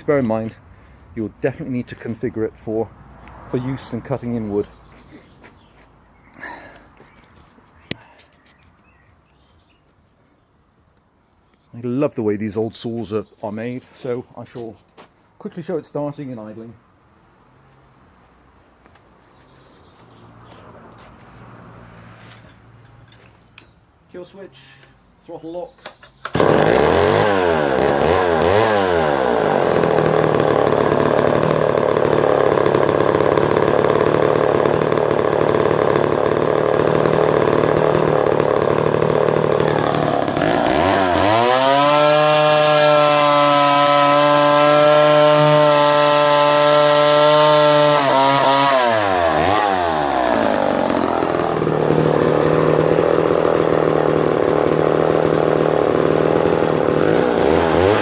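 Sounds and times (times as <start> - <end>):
chainsaw engine revving and idling: 26.3 - 58.0.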